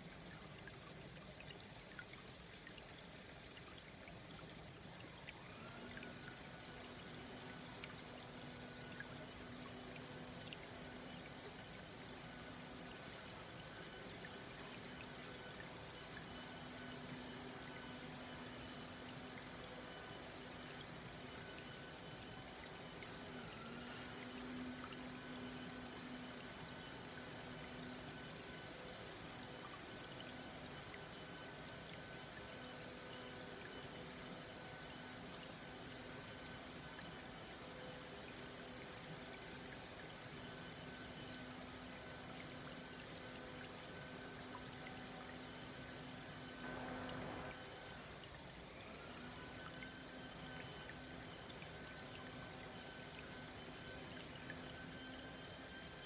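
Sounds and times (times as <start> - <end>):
brook babbling: 0.0 - 56.0
faint steady hum: 0.0 - 56.0
stream babbling: 46.6 - 47.6.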